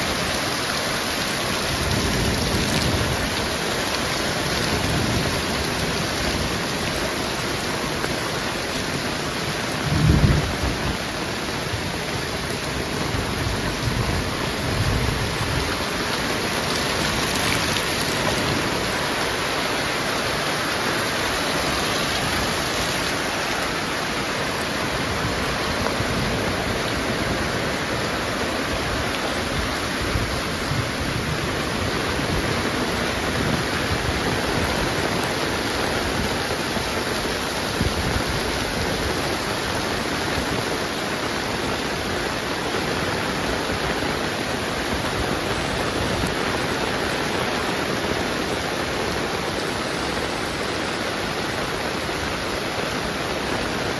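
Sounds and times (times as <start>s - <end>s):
heavy rain falling: 0.0s - 53.9s
low thunder rumble: 9.8s - 11.0s.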